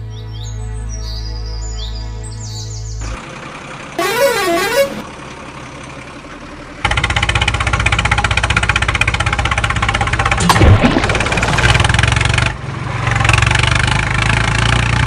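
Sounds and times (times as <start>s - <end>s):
heavy truck engine chugging: 3.0s - 10.4s
warbling vehicle horn: 4.0s - 5.0s.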